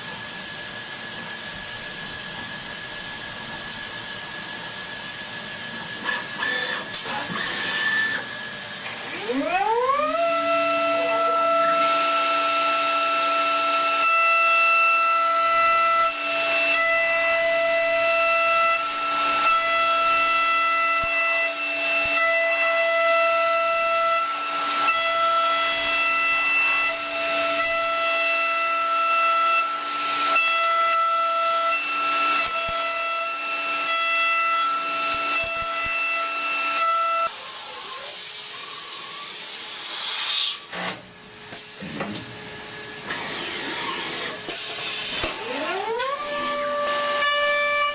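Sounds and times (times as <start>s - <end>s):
machine high-pitched whine: 0.0s - 14.4s, 31.8s - 47.9s
hiss: 37.3s - 40.8s.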